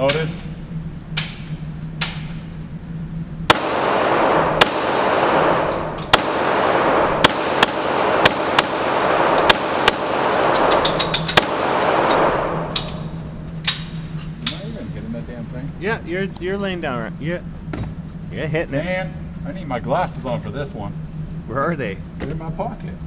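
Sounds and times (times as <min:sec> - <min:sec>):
handgun shots with echo: 0:03.5 - 0:14.6.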